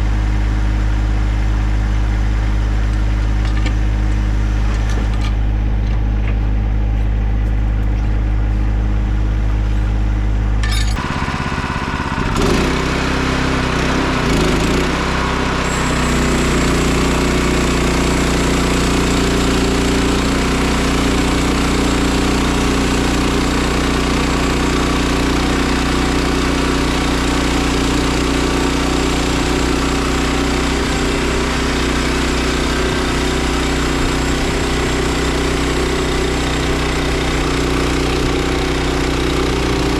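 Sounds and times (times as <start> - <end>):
gasoline engine running: 0.0 - 12.6, 15.3 - 39.9
thin high whine: 15.7 - 17.5.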